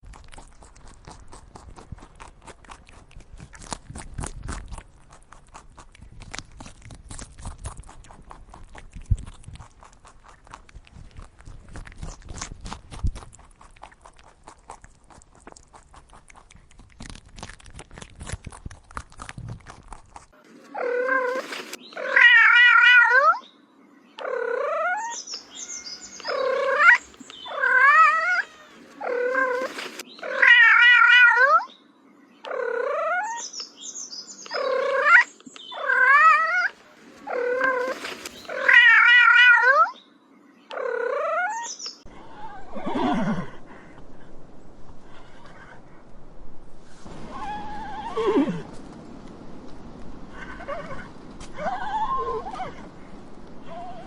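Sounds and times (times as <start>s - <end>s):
cat meowing: 22.0s - 23.4s, 24.2s - 31.7s, 35.8s - 40.0s.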